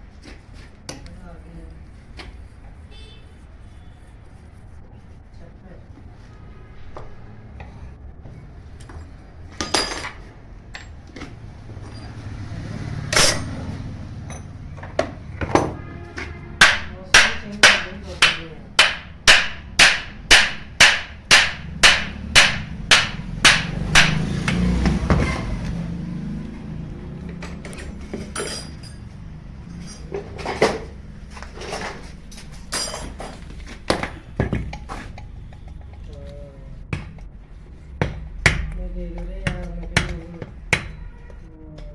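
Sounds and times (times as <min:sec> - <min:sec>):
hammer striking metal pump: 0:13.1 - 0:13.6, 0:15.6 - 0:25.1.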